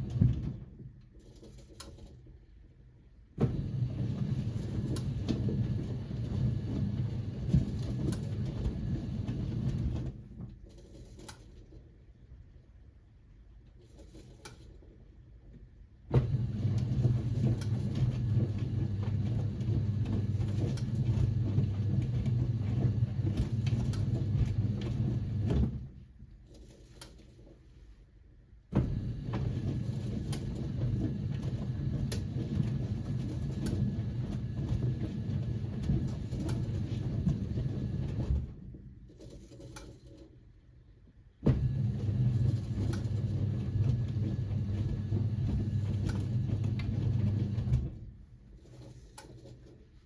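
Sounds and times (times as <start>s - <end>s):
washing machine drum tumbling: 0.0s - 1.0s, 3.4s - 10.6s, 16.1s - 26.0s, 28.7s - 39.0s, 41.4s - 48.2s.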